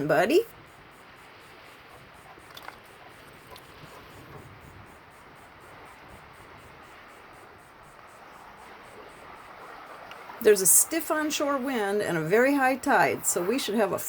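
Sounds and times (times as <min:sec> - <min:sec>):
wind: 0:00.0 - 0:14.0
insect chirring: 0:00.4 - 0:11.4.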